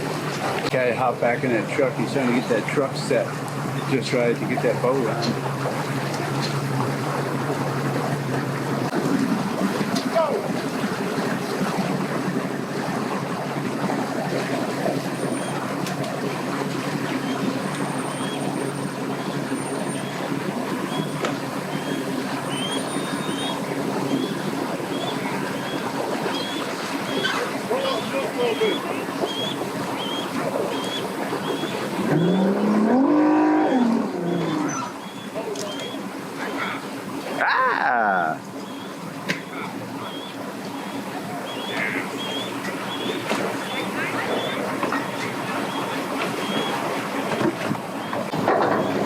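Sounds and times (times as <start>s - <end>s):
rushing water-like noise: 0.0s - 49.0s
engine revving: 32.0s - 34.8s.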